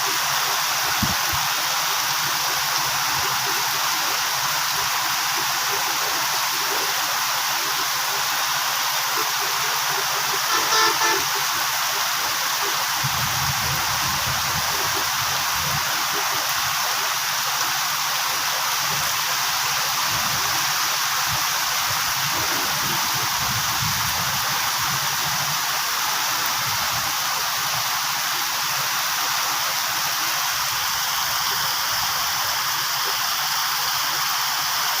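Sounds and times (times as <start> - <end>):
short horn toot: 10.5 - 11.5.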